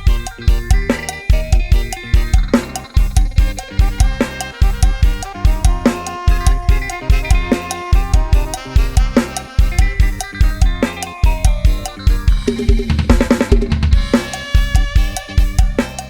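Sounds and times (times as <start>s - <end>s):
melody: 0.0s - 12.9s
band music with fast drums: 0.0s - 16.0s
bass drum and snare hits: 0.0s - 16.0s.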